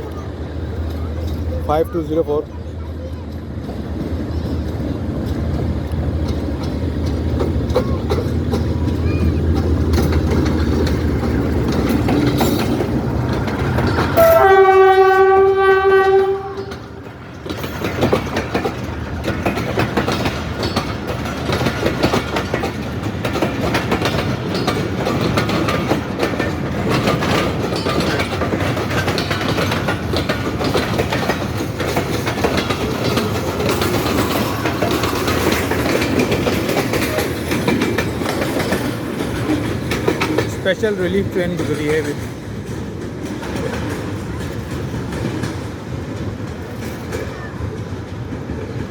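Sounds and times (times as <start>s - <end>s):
locomotive engine rumbling: 0.0s - 48.9s
wheels clattering over rail joints: 0.0s - 48.9s
train horn blast: 14.2s - 17.0s.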